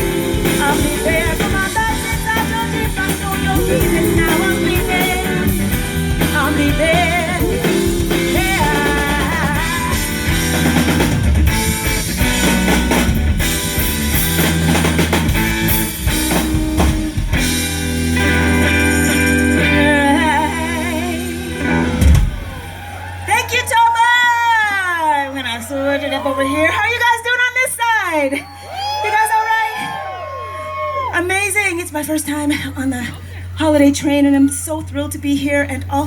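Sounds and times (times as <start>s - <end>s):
live rock band: 0.0s - 24.7s.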